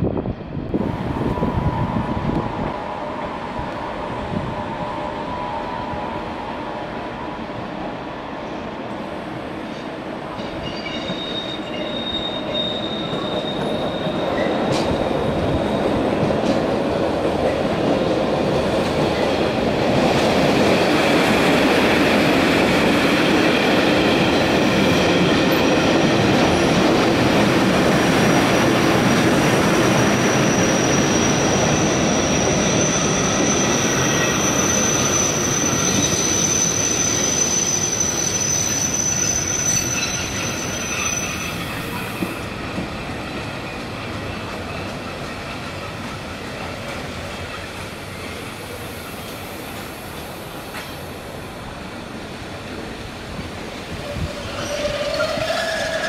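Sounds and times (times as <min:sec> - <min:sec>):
train wheels on rails: 0:00.0 - 0:56.0
high-pitched wheel squeal: 0:10.6 - 0:15.9, 0:30.2 - 0:42.4, 0:54.1 - 0:56.0.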